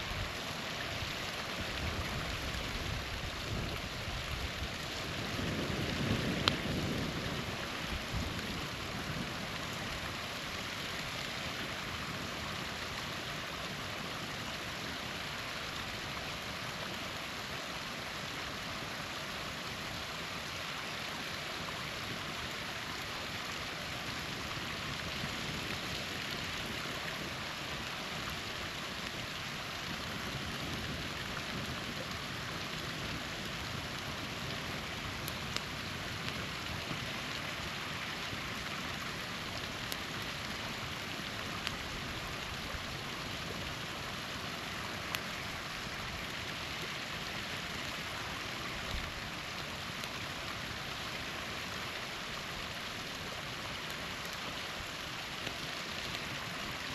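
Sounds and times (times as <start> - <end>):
small waterfall running: 0.0 - 56.9
campfire crackling and popping: 0.4 - 56.9.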